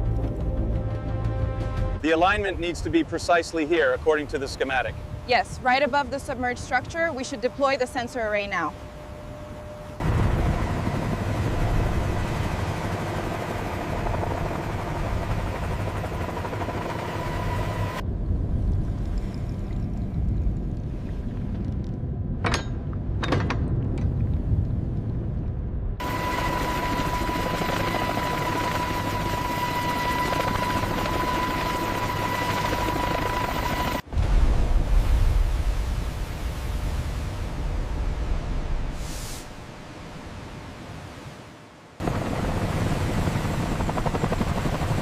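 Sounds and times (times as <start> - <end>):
helicopter rotor and engine: 2.1 - 18.0, 26.0 - 34.0, 42.0 - 45.0.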